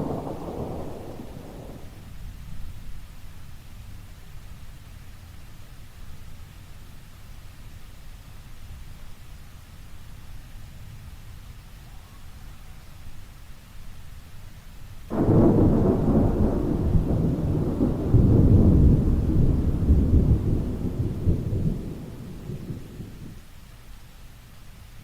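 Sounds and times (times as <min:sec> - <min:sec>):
thunder clap and rumble: 0:00.0 - 0:02.3, 0:15.1 - 0:23.4
steady rain: 0:00.0 - 0:25.0.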